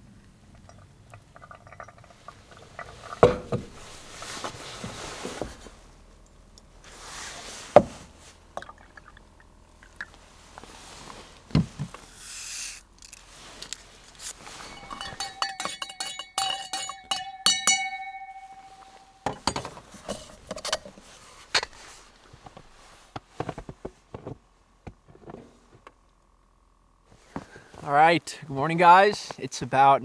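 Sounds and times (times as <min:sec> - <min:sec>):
rapid clinking on a cup: 0:12.4 - 0:20.9.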